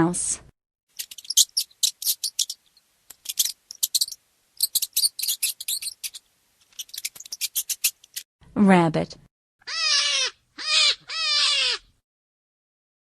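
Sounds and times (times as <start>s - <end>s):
mouse squeaking: 0.9s - 8.2s, 9.7s - 11.8s.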